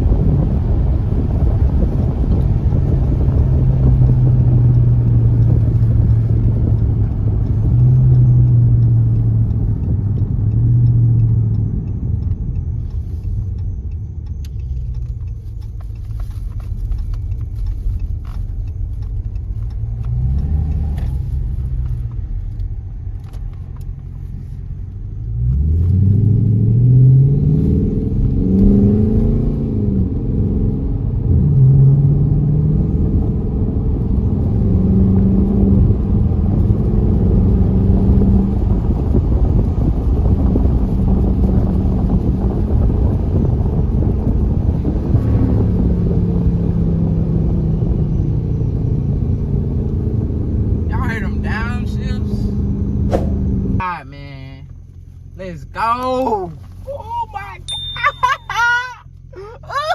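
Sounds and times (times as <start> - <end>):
vee eight engine droning: 0.0 - 24.0
engine accelerating through gears: 0.0 - 53.8.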